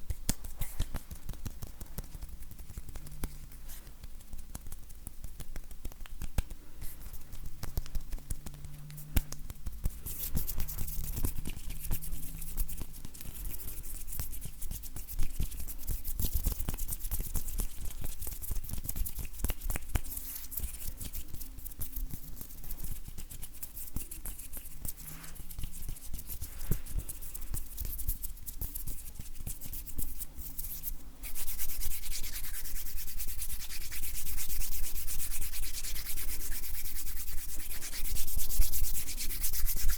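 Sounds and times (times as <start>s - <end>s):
dry hands rubbing together: 0.0s - 39.9s.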